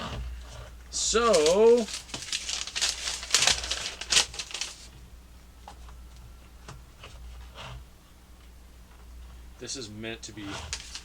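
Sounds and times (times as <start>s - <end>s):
plastic packaging rustling and clicking: 0.9s - 5.0s, 10.6s - 11.0s.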